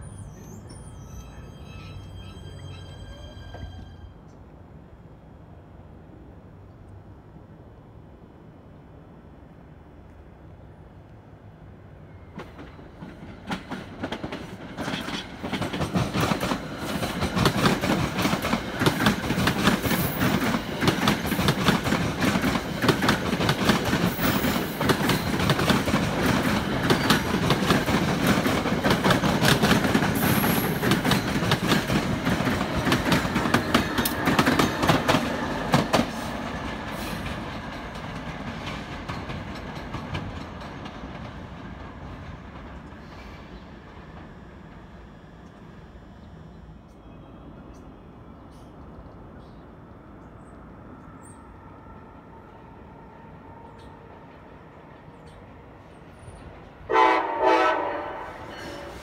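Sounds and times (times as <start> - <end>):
train wheels clicking over rail joints: 12.3 - 44.9.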